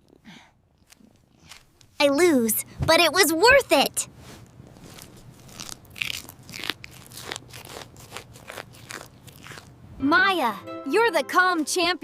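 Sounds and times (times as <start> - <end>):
crunchy chewing: 4.8 - 9.8.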